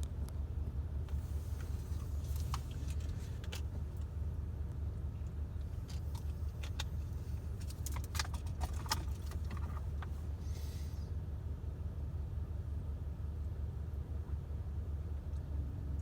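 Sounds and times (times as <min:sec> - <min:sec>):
truck engine humming: 0:00.8 - 0:04.4, 0:05.0 - 0:10.9.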